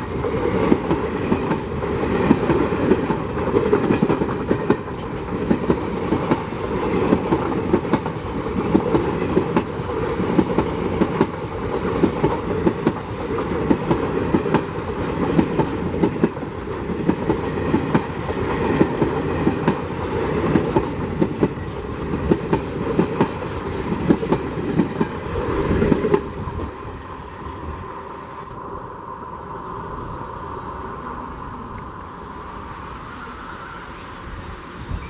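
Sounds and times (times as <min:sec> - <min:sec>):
train wheels clattering: 0:00.0 - 0:27.0
faint steady train rumble: 0:00.0 - 0:35.0.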